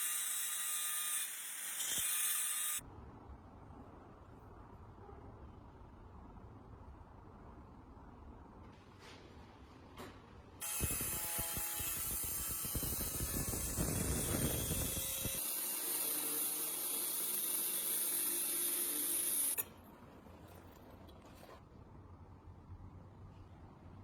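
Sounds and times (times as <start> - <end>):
small power tool running: 10.6 - 19.6.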